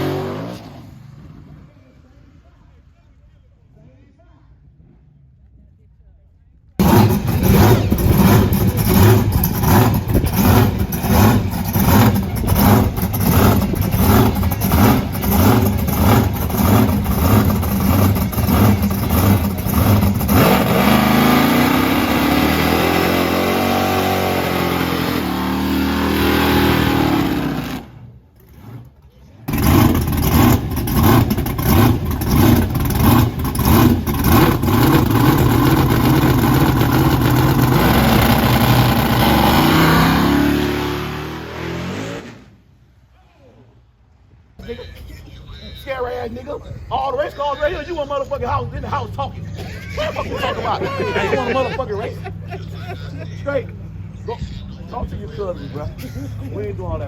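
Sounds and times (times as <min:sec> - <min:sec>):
car engine revving: 0:00.0 - 0:01.8, 0:06.8 - 0:42.6.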